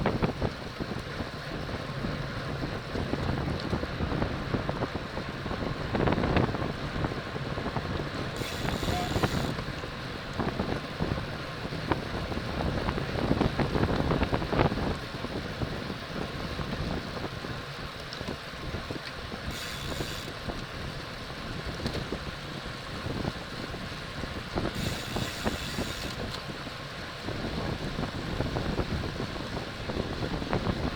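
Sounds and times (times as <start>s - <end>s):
road noise: 0.0s - 30.9s
wind buffeting microphone: 0.0s - 30.9s
bursts of high hiss: 8.4s - 9.6s.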